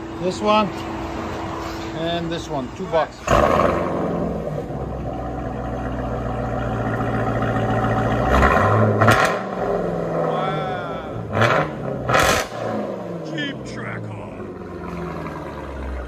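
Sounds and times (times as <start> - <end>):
car exhaust revving: 3.2 - 16.0.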